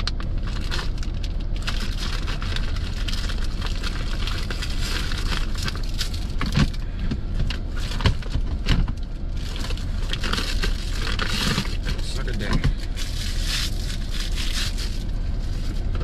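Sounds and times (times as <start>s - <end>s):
food packaging crinkling: 0.0s - 6.8s, 9.4s - 16.0s
truck engine idling: 0.0s - 16.0s.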